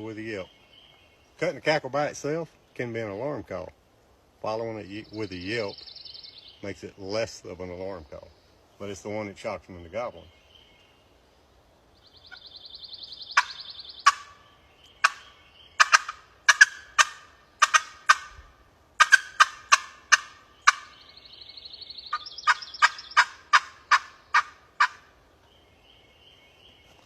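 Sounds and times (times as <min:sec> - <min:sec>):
turkey friction call cutting: 0:15.8 - 0:18.4, 0:19.0 - 0:20.9.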